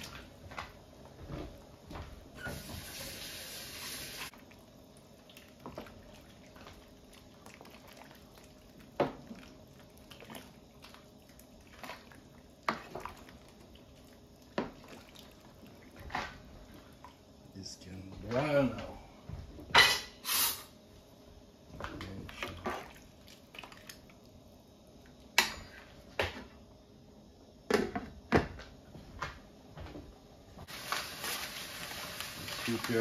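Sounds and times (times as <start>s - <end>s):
water running from a tap: 2.4s - 4.3s.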